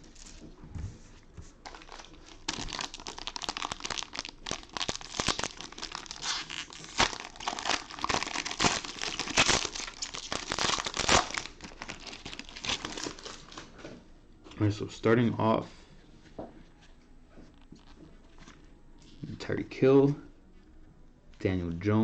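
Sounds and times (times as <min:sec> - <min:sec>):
plastic wrapping crinkling and tearing: 0:01.6 - 0:13.9, 0:17.6 - 0:19.3.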